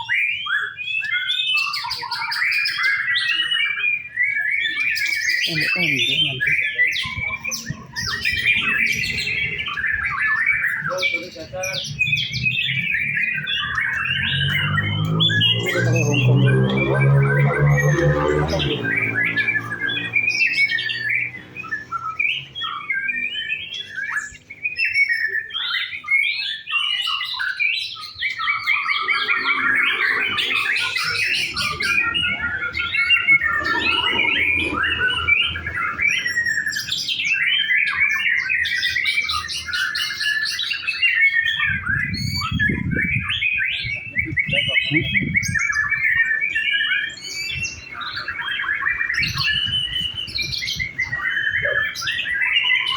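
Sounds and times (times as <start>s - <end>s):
bird singing whistles and trills: 0.0s - 52.9s
low rumbles: 28.8s - 36.5s.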